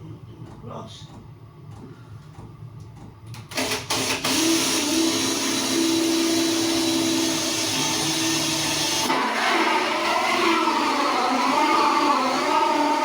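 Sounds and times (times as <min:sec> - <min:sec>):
electric drill with hole saw: 0:03.5 - 0:13.0.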